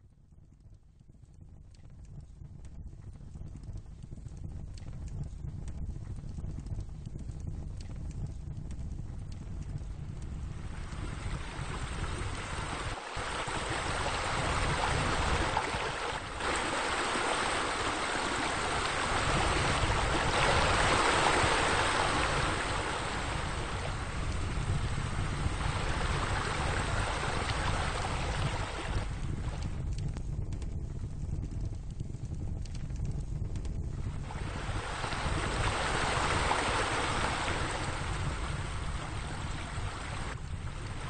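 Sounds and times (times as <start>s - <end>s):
running water: 10.7s - 29.8s, 34.2s - 41.0s.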